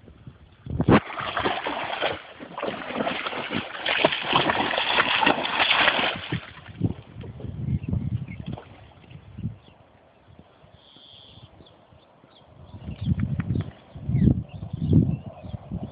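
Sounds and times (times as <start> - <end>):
dog splashing through water: 0.9 - 6.7.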